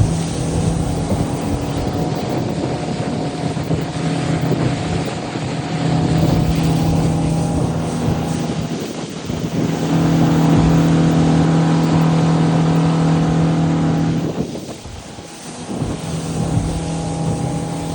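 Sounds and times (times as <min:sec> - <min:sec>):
boat engine humming: 0:00.0 - 0:17.9
rushing hiss: 0:14.2 - 0:17.9.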